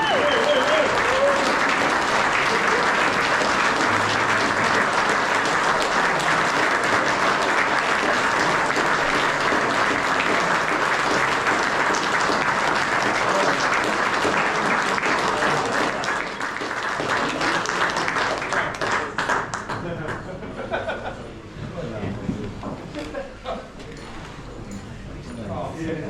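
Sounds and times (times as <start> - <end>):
audience applauding: 0.0 - 20.6.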